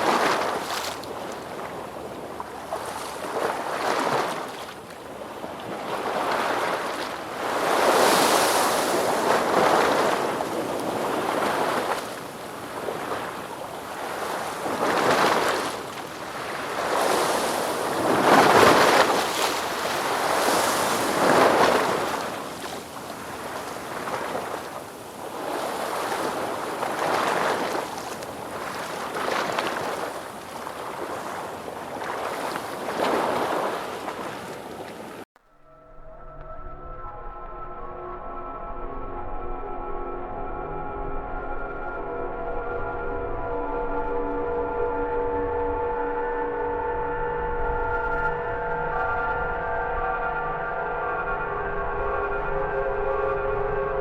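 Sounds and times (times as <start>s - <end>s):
ocean waves breaking: 0.0s - 35.3s.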